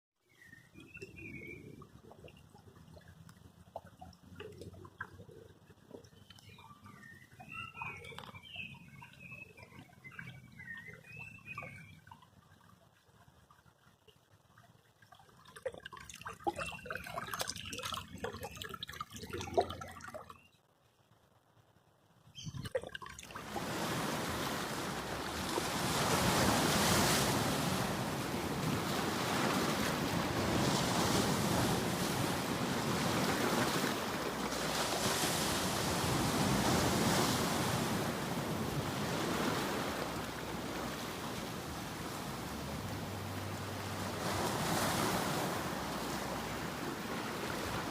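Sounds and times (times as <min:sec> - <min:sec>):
water trickling and splashing: 0:00.4 - 0:47.9
sea waves rushing: 0:23.3 - 0:47.9.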